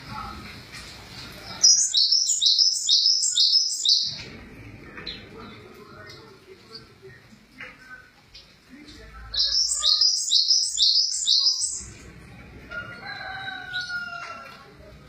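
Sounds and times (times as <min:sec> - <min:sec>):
songbird singing falling notes: 0:01.6 - 0:04.3, 0:09.3 - 0:11.9.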